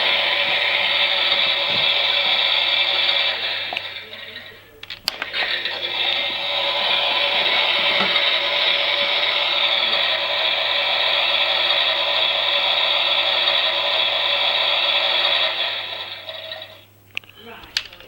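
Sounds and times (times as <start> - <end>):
small electric motor whirring: 5.1 - 16.8.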